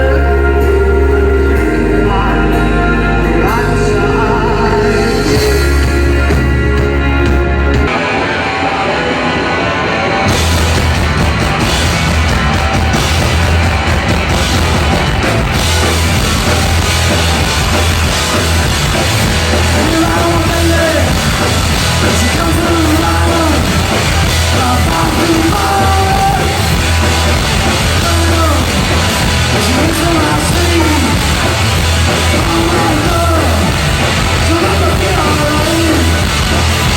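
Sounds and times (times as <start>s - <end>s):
rock band playing: 0.0s - 36.9s
person singing and shouting: 19.4s - 36.3s.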